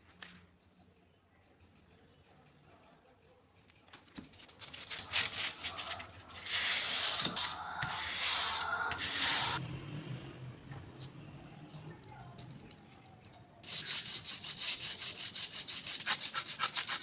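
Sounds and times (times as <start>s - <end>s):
knife scraping on sharpening stone: 4.5s - 9.6s.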